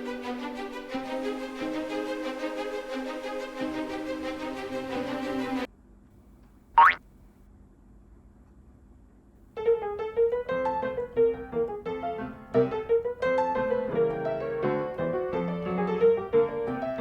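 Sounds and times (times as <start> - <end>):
piano music: 0.0 - 5.7, 9.6 - 17.0.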